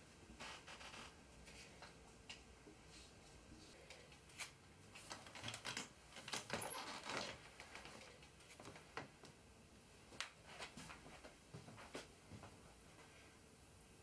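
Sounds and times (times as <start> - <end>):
clicks and rustles of handling: 3.8 - 9.4.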